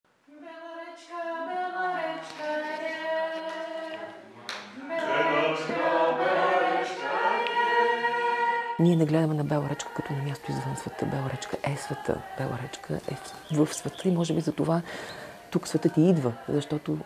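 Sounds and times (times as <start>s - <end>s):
voices singing without instruments: 0.3s - 17.0s.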